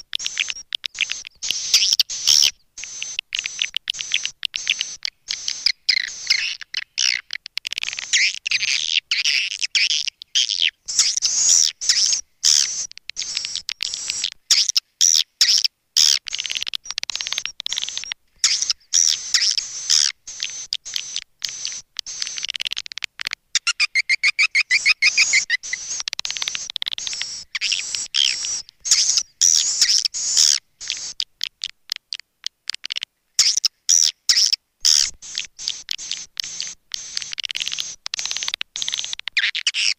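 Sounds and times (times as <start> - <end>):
swiftlets chirping and twittering: 0.2 - 22.8, 23.6 - 31.2, 33.4 - 39.9
evenly spaced clicks: 2.9 - 8.5, 16.3 - 18.8, 19.4 - 23.4, 25.7 - 29.2, 30.8 - 33.6, 34.9 - 39.9.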